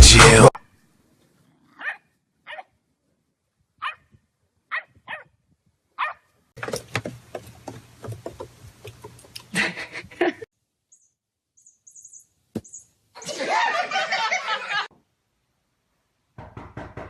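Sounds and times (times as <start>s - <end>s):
dog barking: 1.8s - 2.7s, 3.8s - 4.1s, 4.7s - 5.3s, 6.0s - 6.3s.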